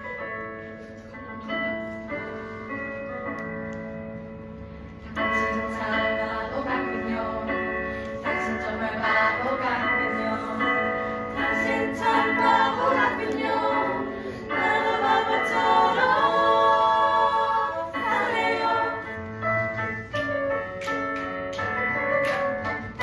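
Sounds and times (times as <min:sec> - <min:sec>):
group singing a praise song: 0:08.3 - 0:10.6, 0:11.3 - 0:19.4.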